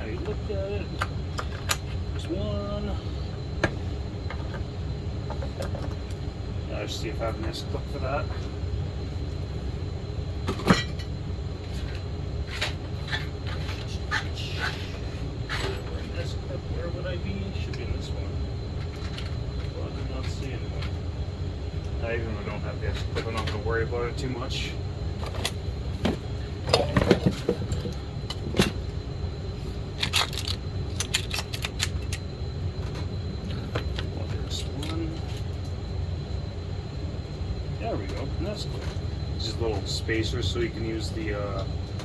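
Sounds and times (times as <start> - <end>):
steady low hum: 0.0 - 42.0
metal parts clicking and rattling: 30.0 - 32.2.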